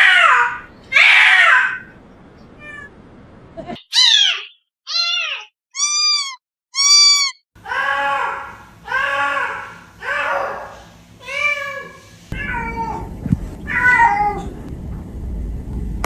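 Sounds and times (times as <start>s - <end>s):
cat meowing: 0.0s - 1.9s, 2.6s - 2.9s, 3.9s - 7.4s, 12.4s - 13.1s, 13.7s - 14.5s.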